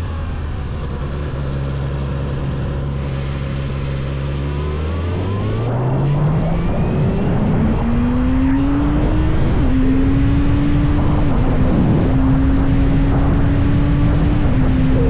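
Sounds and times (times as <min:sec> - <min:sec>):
motorcycle engine accelerating: 0:00.0 - 0:15.0
rushing noise: 0:03.0 - 0:15.0.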